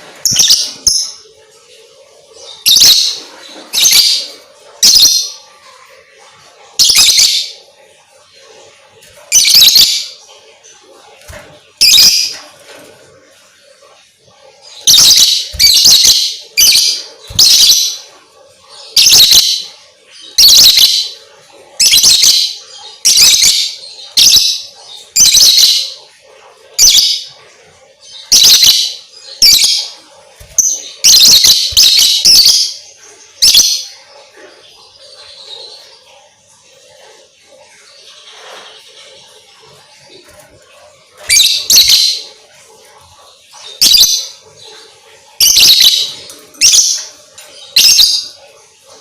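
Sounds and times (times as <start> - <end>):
lovebird shrill chirping: 9.3 - 10.1, 11.8 - 12.3, 14.8 - 18.1, 28.3 - 29.7, 30.4 - 32.8, 41.3 - 42.2.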